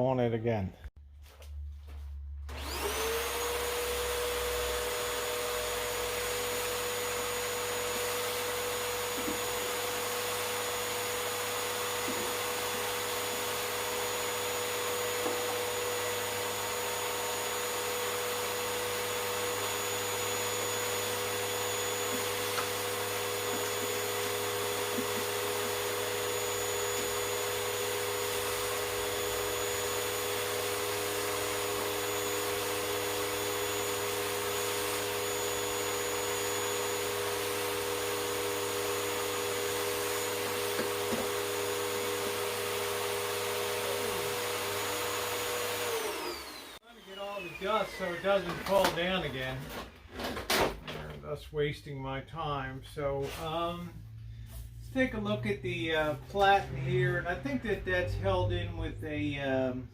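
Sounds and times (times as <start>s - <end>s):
vacuum cleaner motor whine: 2.5s - 50.0s.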